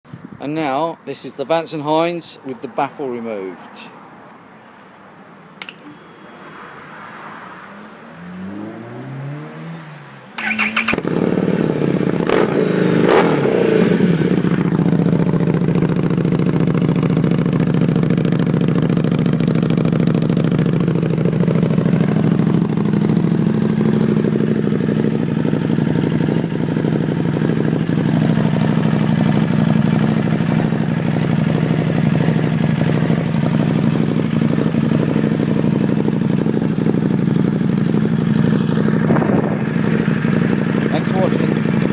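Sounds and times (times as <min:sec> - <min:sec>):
motorcycle starter cranking: 0:10.4 - 0:11.2
motorcycle engine idling: 0:10.4 - 0:12.3, 0:13.8 - 0:41.9.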